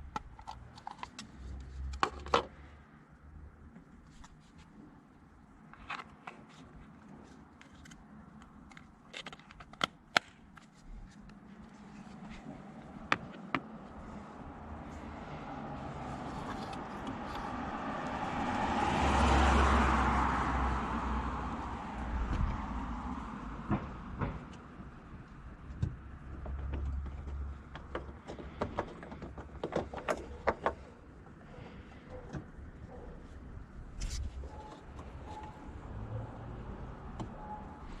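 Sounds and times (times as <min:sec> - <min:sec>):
vehicle passing by: 0:13.8 - 0:24.1, 0:34.6 - 0:38.0
sharp irregular clicks and knocks: 0:25.6 - 0:32.6.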